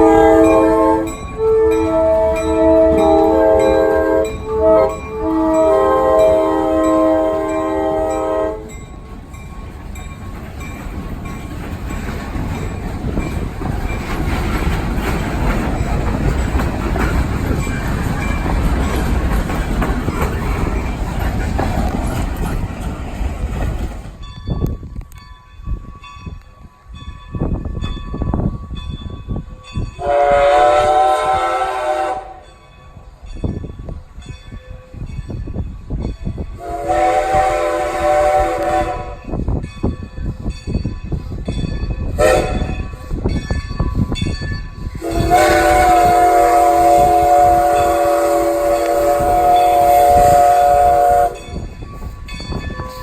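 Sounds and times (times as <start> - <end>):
train horn chime blasts: 0.0 - 8.8, 30.0 - 32.6, 36.5 - 39.4, 42.1 - 42.9, 45.0 - 51.8
train running: 0.0 - 53.0.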